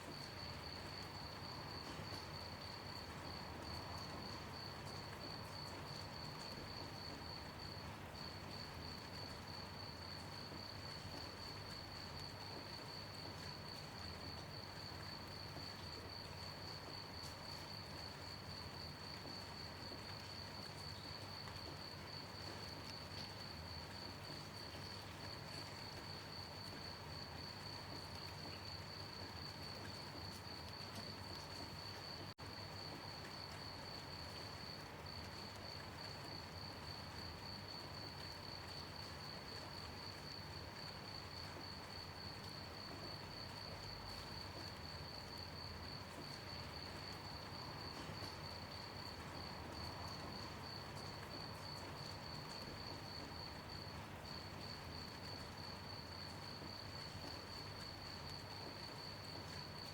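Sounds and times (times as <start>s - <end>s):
light rain hiss: 0.0s - 59.9s
crickets chirping: 16.9s - 59.9s.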